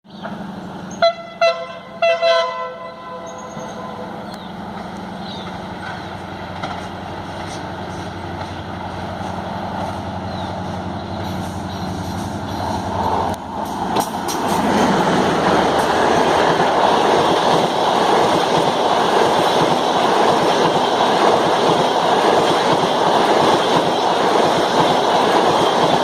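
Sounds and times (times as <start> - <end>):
train rumbling: 0.1 - 26.0
train horn blasts: 0.9 - 4.2.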